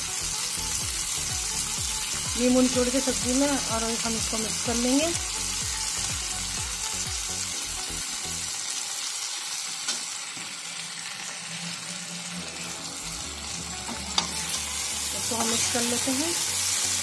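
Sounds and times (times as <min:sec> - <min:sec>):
okra sizzling in hot oil: 0:00.0 - 0:17.0.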